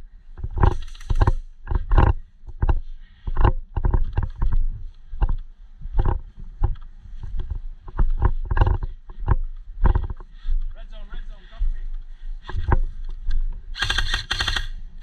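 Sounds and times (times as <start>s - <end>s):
sharp knocks and thuds: 0.4s - 4.6s, 5.2s - 10.3s.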